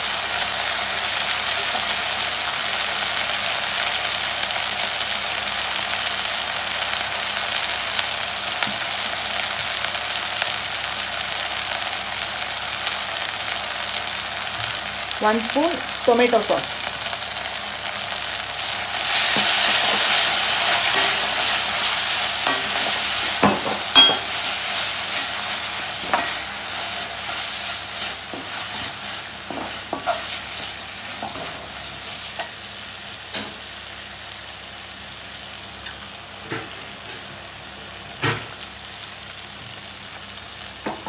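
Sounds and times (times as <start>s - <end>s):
onions sizzling in a pan: 0.0s - 41.0s
metal spoon scraping a pan: 19.2s - 21.6s, 26.0s - 26.4s, 28.0s - 31.5s.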